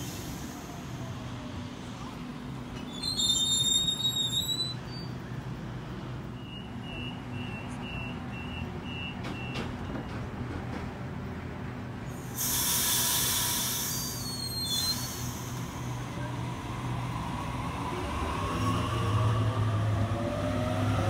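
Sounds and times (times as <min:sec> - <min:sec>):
high squeal: 0:02.8 - 0:05.2, 0:13.8 - 0:15.6.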